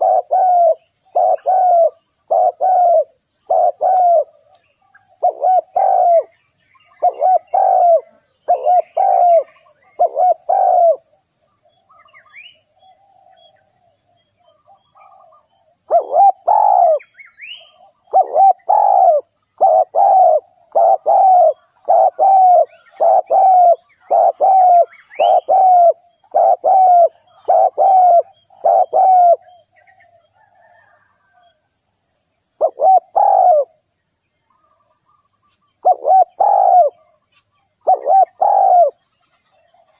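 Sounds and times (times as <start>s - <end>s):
dove cooing: 0.0s - 4.5s, 5.1s - 11.0s, 14.4s - 31.6s, 32.6s - 33.8s, 35.8s - 37.2s, 37.8s - 39.0s.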